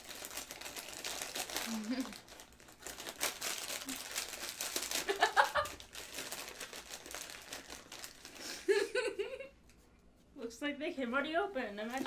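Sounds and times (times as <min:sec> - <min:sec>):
foil snack bag crackling: 0:00.0 - 0:08.8.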